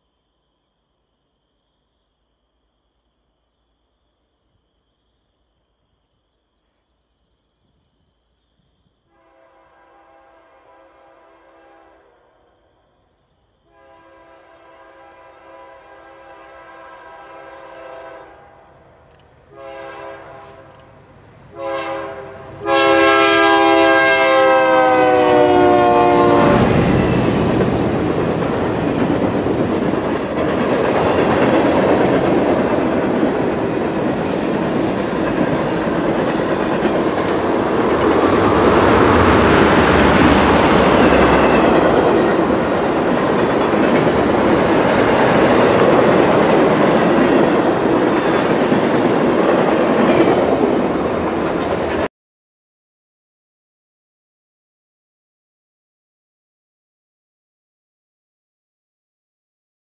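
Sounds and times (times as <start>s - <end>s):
locomotive air horn blasts: 9.1s - 12.2s, 13.7s - 18.8s, 19.5s - 20.8s, 21.5s - 27.4s.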